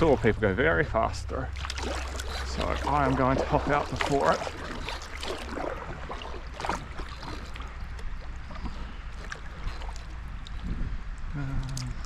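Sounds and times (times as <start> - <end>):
running water: 0.0 - 12.0
steady low rumble: 0.0 - 12.0
paddle splashes and knocks: 1.5 - 10.0.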